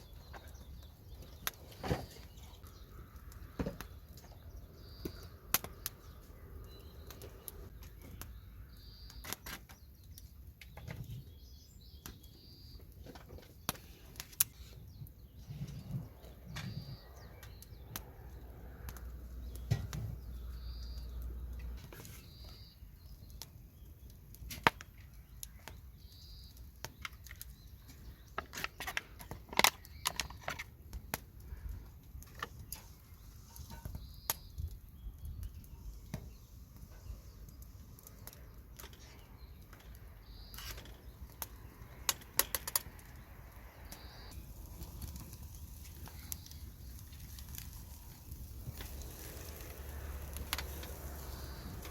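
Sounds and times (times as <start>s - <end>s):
high bird chirps: 4.3s - 9.4s, 22.0s - 23.4s, 43.1s - 44.4s.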